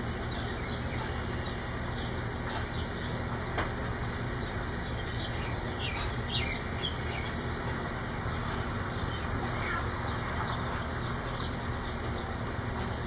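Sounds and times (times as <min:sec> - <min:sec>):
steady rain falling: 0:00.0 - 0:13.0
bird chirps: 0:04.4 - 0:12.9.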